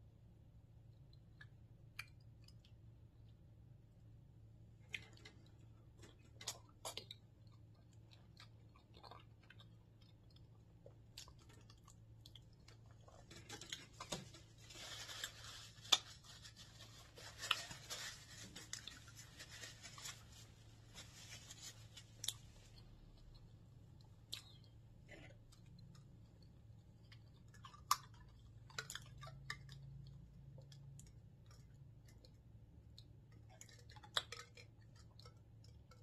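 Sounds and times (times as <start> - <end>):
person chewing: 4.8 - 14.5, 21.8 - 36.0.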